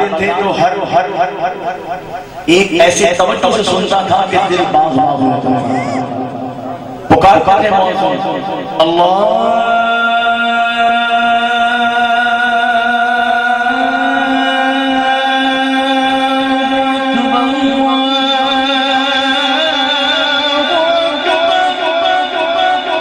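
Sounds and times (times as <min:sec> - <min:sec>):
man singing long melismatic note: 0:05.3 - 0:23.0.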